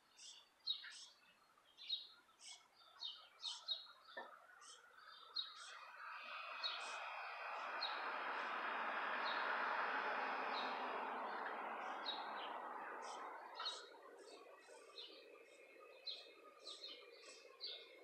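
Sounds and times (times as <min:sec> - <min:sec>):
small birds chirping: 0:00.0 - 0:18.0
broad rushing noise: 0:06.1 - 0:13.6.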